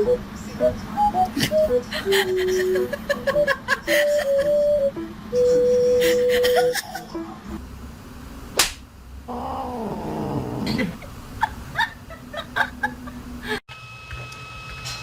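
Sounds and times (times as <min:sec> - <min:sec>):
sharp smack: 0:08.6 - 0:08.9.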